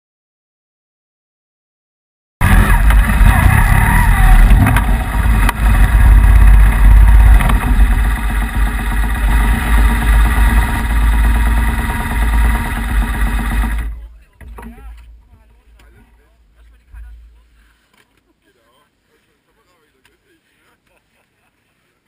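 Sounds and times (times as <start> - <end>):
motorcycle engine idling: 2.4 - 17.6.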